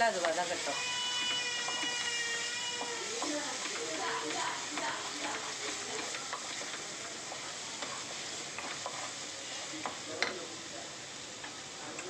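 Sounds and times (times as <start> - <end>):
masala sizzling in oil: 0.0 - 12.0
wooden spatula scraping and knocking: 0.2 - 2.1, 2.8 - 9.2.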